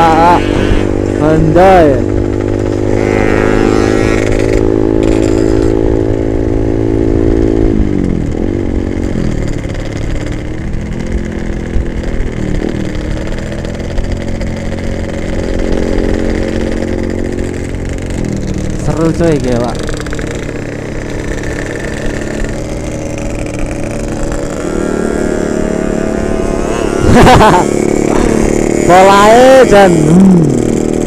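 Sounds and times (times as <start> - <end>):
two-stroke motorcycle engine: 0.0 - 31.0.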